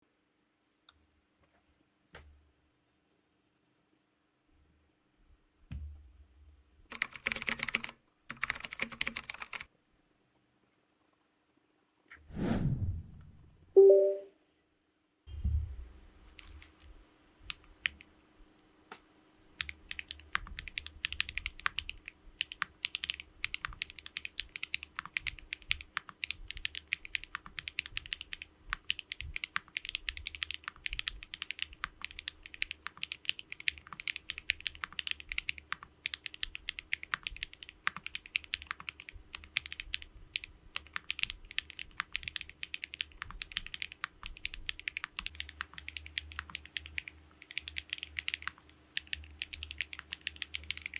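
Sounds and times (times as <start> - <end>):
mechanical keyboard typing: 6.9 - 9.7, 19.6 - 50.9.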